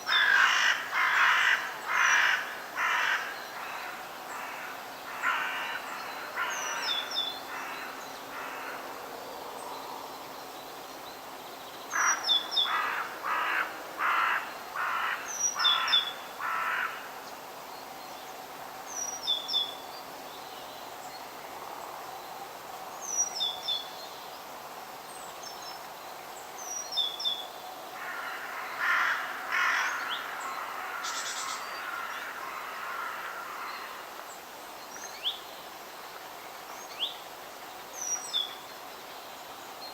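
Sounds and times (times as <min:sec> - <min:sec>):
outdoor background hiss: 0:00.0 - 0:39.9
crows cawing: 0:00.1 - 0:06.8, 0:07.5 - 0:08.8, 0:12.0 - 0:17.1, 0:28.0 - 0:34.0.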